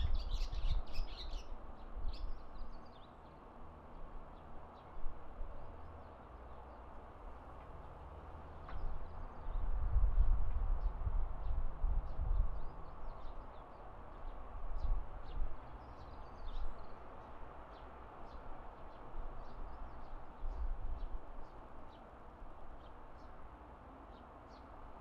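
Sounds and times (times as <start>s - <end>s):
small birds chirping: 0.0s - 3.4s, 10.8s - 22.1s.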